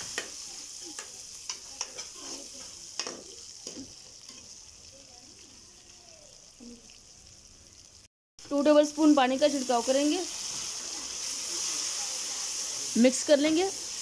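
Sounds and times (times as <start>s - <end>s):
steel spoon scraping a pan: 0.0s - 4.6s
onions sizzling in hot oil: 0.0s - 14.0s.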